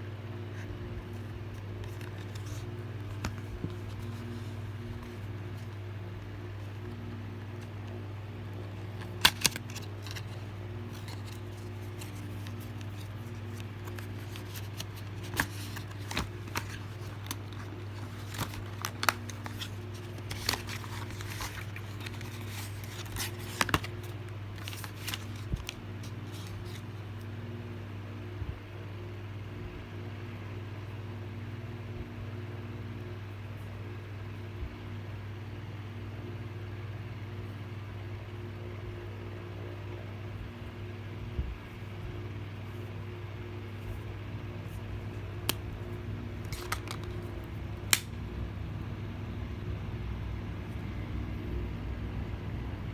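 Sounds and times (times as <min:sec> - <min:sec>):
steady low hum: 0:00.0 - 0:52.9
packaging clicks and scrapes: 0:00.6 - 0:05.8, 0:08.8 - 0:26.9, 0:46.4 - 0:48.1.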